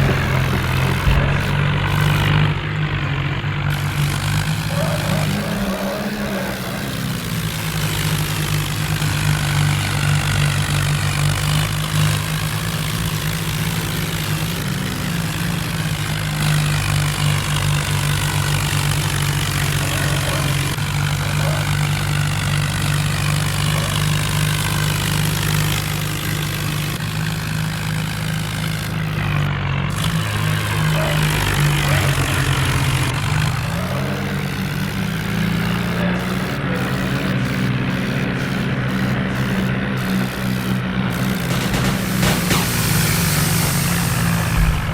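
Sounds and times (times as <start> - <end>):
tractor diesel engine running: 0.0 - 44.9
broad hiss: 41.6 - 44.9.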